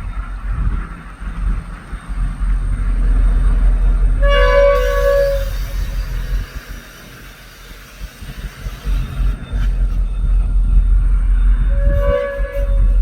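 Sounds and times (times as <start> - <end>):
low train rumble: 0.0 - 13.0
train horn blast: 4.2 - 6.7, 11.6 - 13.0.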